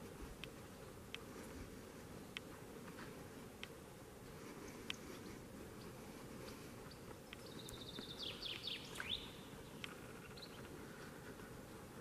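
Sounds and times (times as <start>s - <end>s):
faint forest hiss: 0.0s - 12.0s
songbird singing: 0.0s - 12.0s.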